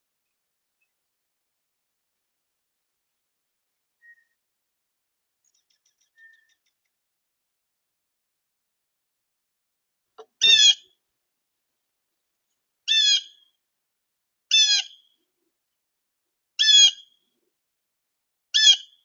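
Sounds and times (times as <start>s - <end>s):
bird calling: 10.3s - 10.8s, 12.9s - 13.4s, 14.5s - 15.0s, 16.6s - 17.1s.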